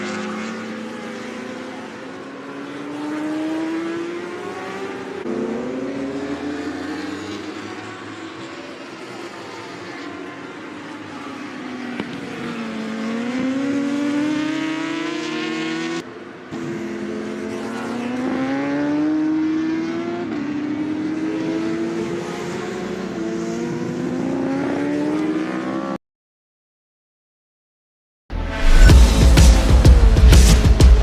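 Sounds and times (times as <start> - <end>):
racing motorcycle engines accelerating: 0.0 - 26.0, 28.6 - 31.0.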